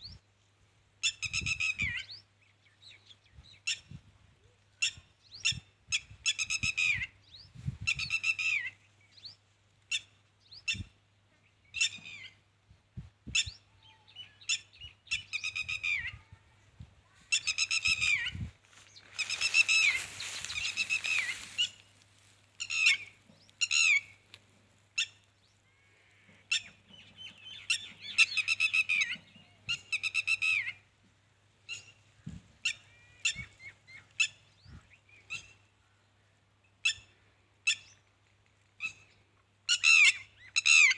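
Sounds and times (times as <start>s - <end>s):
harsh pulsed bird calls: 17.3s - 24.3s.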